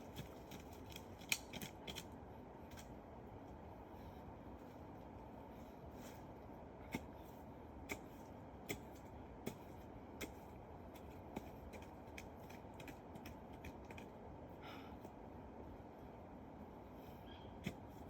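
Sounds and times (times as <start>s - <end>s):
digging tool striking soil: 7.8s - 10.4s.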